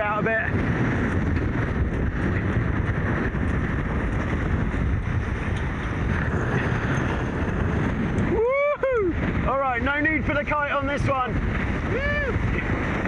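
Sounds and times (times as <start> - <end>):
sailing boat moving fast: 0.0 - 13.0
wind buffeting microphone: 0.0 - 13.0.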